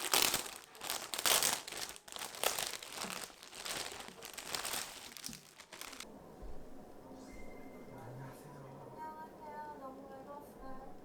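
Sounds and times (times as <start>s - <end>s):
packaging crinkling: 0.0s - 6.0s.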